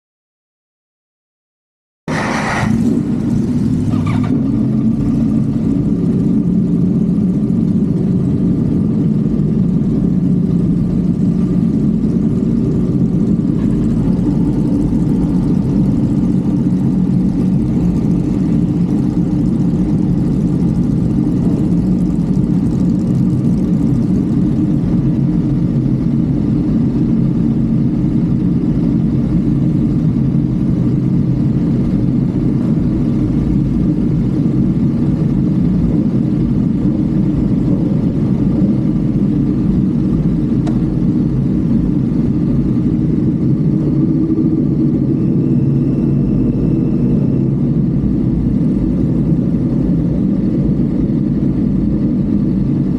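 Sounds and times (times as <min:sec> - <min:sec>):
road noise: 0:02.1 - 0:27.1
car engine drone: 0:02.1 - 0:52.9.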